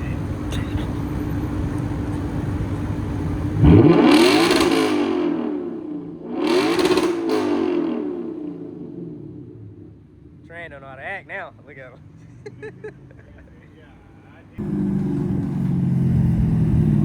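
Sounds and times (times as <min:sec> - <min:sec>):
car engine idling: 0:00.0 - 0:17.0
car engine revving: 0:01.0 - 0:10.9, 0:14.6 - 0:17.0.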